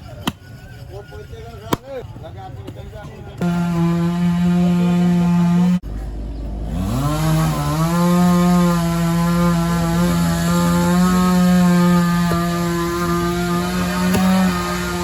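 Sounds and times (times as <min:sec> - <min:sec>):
chainsaw engine revving: 0:03.4 - 0:05.8, 0:06.5 - 0:15.0.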